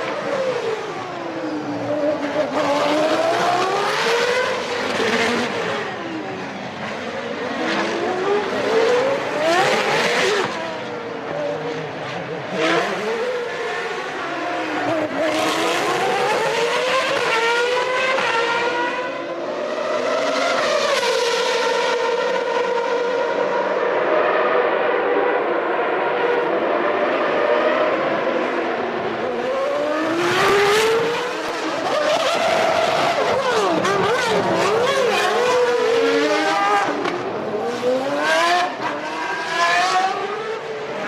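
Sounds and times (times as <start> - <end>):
race car engines revving: 0.0 - 41.0.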